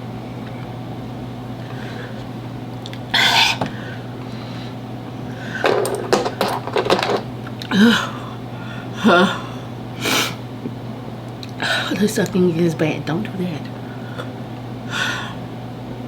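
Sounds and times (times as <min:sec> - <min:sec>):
woman groaning: 0:07.7 - 0:08.4, 0:09.0 - 0:09.5.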